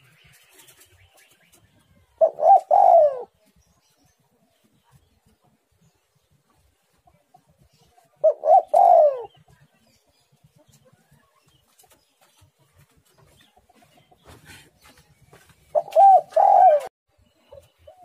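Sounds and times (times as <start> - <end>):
dove cooing: 2.0 - 3.4, 8.2 - 9.5, 15.7 - 16.9.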